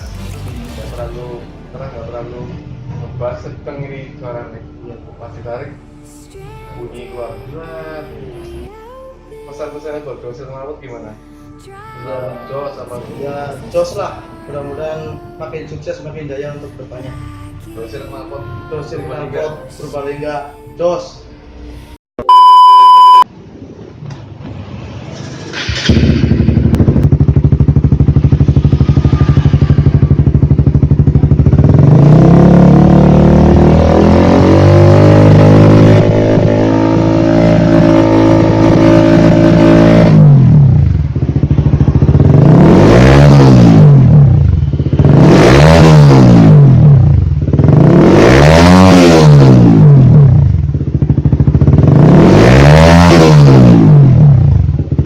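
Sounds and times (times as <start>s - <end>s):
motorcycle engine revving: 23.6s - 55.0s.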